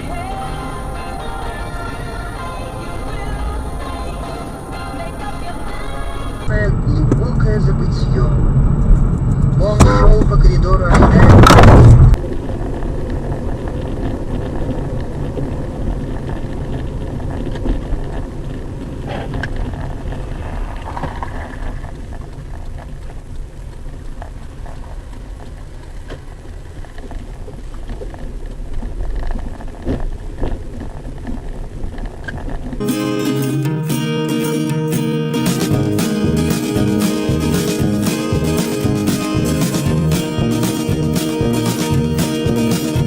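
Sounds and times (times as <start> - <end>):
crackling hiss: 0.0 - 9.7, 11.2 - 33.8
vehicle running rumble: 0.0 - 33.0, 35.4 - 43.0.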